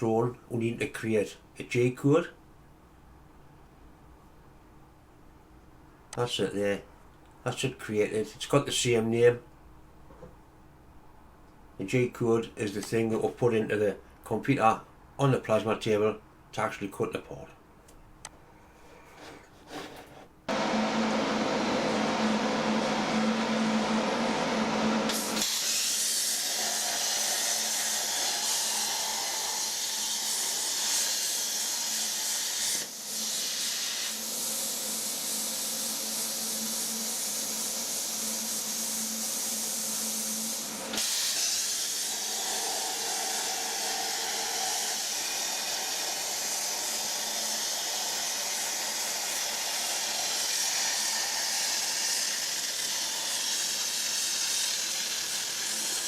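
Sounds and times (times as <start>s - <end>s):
plasma cutter hissing: 25.1s - 56.0s.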